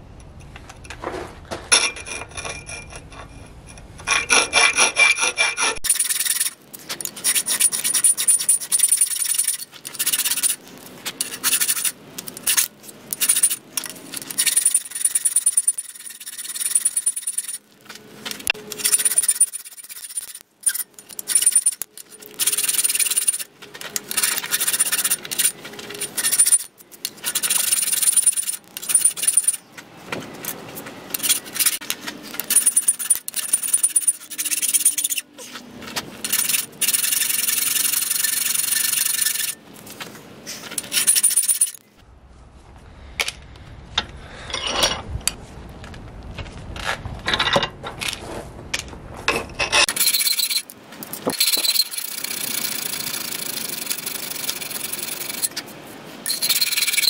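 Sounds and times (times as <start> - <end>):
file rasping on steel: 2.1 - 10.6.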